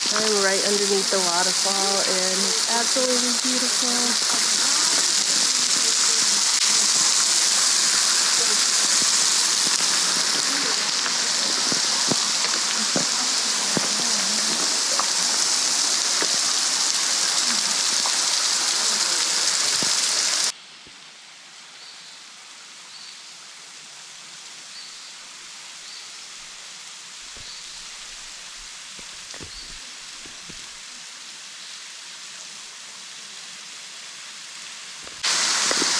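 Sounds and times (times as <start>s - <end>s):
waterfall pouring: 0.0s - 20.6s, 27.1s - 31.0s, 35.1s - 35.9s.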